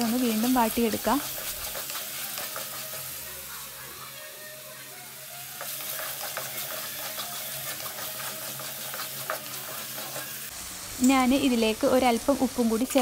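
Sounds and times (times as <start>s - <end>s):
food sizzling in oil: 0.0s - 13.0s
spoon scraping a pan: 0.1s - 4.2s, 5.5s - 10.5s.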